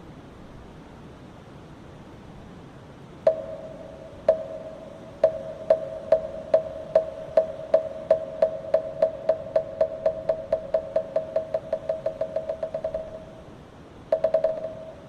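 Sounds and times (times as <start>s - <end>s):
wooden temple block knocks: 4.2s - 13.3s, 14.1s - 15.0s.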